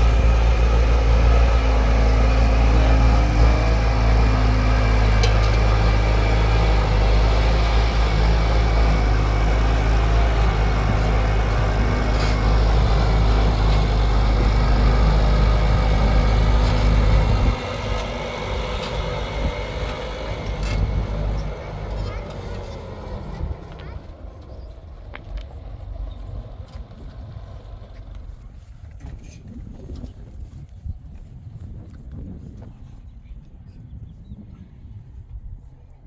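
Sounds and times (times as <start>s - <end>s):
engine humming: 0.0s - 30.0s.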